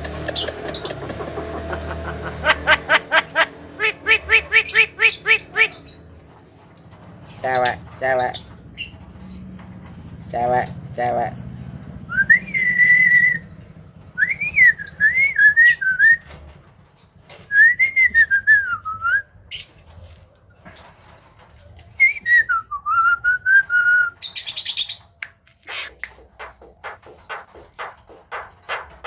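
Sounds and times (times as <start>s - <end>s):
bird harsh rasping call: 0.0s - 6.0s.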